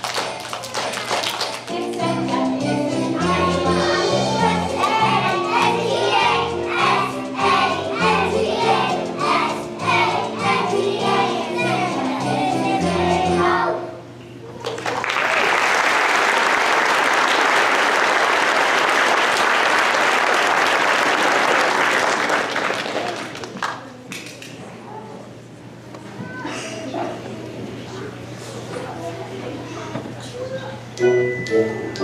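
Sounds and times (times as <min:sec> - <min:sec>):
audience applauding: 0:00.0 - 0:01.7, 0:14.6 - 0:23.9
children's choir singing: 0:00.0 - 0:14.0
musical accompaniment: 0:01.7 - 0:13.6, 0:31.0 - 0:32.0.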